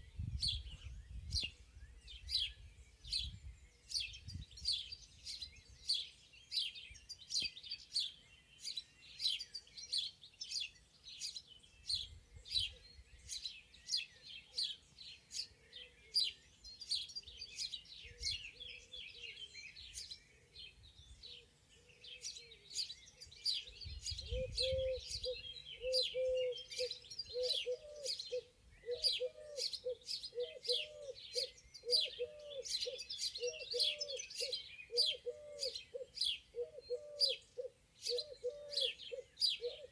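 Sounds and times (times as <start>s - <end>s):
songbirds chirping: 0.0s - 39.9s
low bird call: 24.2s - 39.9s.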